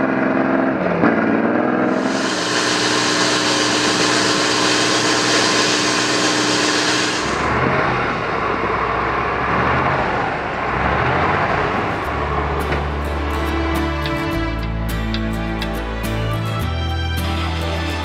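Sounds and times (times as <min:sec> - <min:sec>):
truck engine revving hard: 0:00.0 - 0:13.6
rushing noise: 0:01.9 - 0:08.6.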